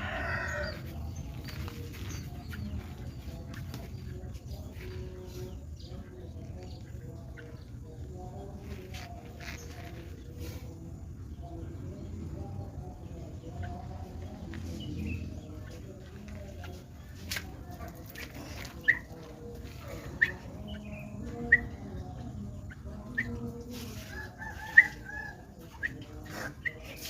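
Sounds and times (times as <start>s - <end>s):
chickens clucking: 13.1s - 27.0s.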